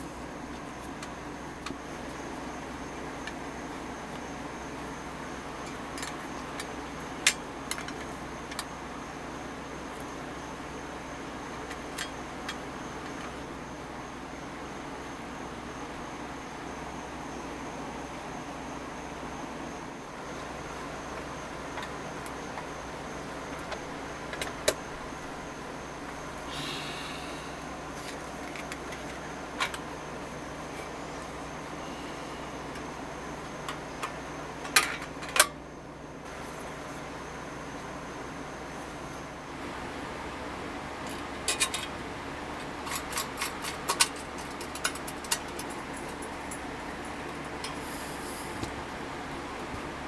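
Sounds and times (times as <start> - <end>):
steady low hum: 0.0 - 50.0
metal parts clicking and tapping: 41.1 - 41.9, 42.8 - 46.6.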